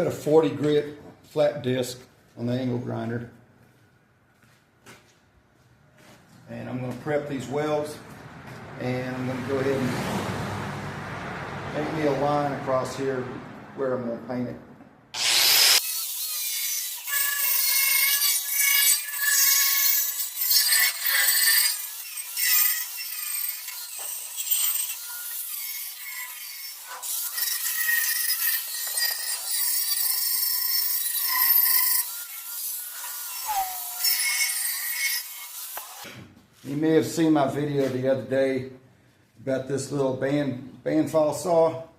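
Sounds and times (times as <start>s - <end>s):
power grinder grinding steel: 15.2s - 36.2s.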